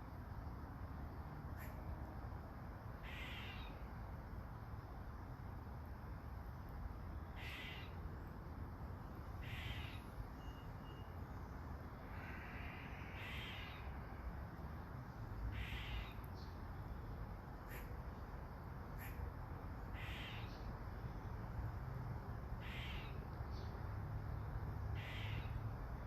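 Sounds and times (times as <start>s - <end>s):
bird giving short calls: 7.4s - 8.0s, 9.4s - 10.0s, 15.5s - 16.2s, 22.6s - 23.1s, 25.0s - 25.5s.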